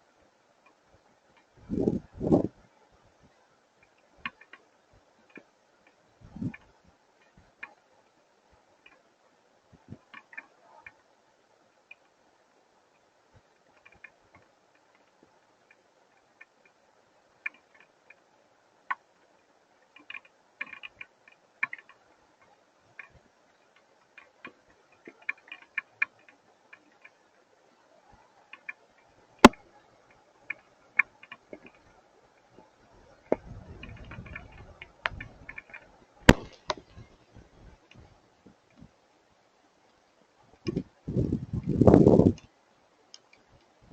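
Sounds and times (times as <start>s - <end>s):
hailstones striking: 36.3s - 37.1s.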